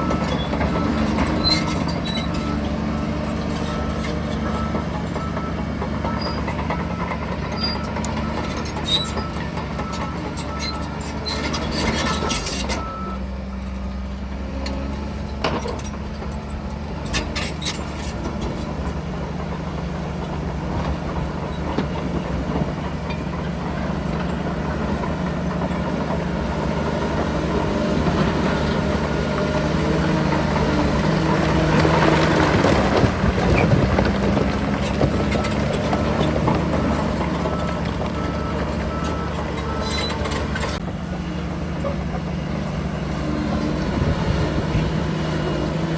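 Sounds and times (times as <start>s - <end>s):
reversing alarm beeping: 0.0s - 13.4s, 35.3s - 40.8s
heavy diesel machinery running: 0.0s - 45.9s.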